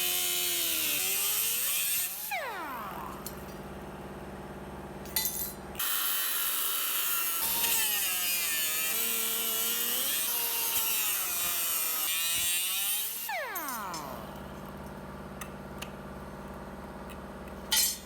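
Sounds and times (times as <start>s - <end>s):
power tool grinding: 0.0s - 3.4s, 7.0s - 14.5s.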